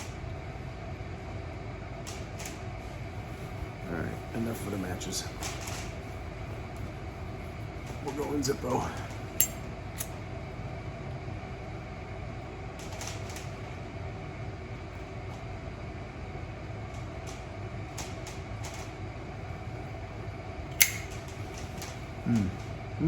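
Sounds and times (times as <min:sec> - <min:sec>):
fan-like hum: 0:00.0 - 0:23.0
lighter clicks: 0:09.4 - 0:10.1, 0:20.8 - 0:21.2.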